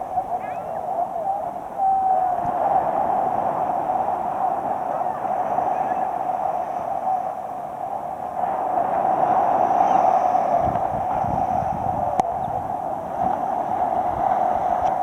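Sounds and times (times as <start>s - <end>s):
surf on a beach: 0.0s - 15.0s
wind: 0.0s - 15.0s.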